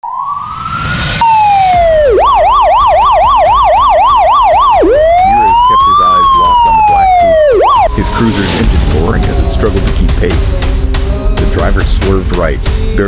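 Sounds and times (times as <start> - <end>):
police siren wailing and yelping: 0.0 - 8.6.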